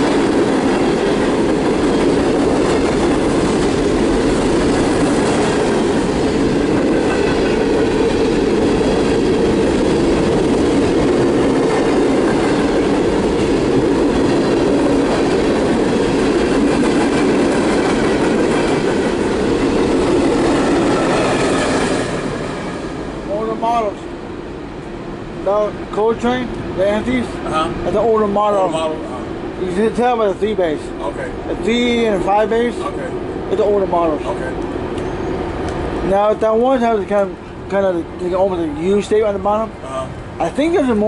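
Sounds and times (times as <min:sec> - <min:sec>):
freight train wheels rumbling: 0:00.0 - 0:41.0
faint wheel squeal: 0:35.0 - 0:35.5.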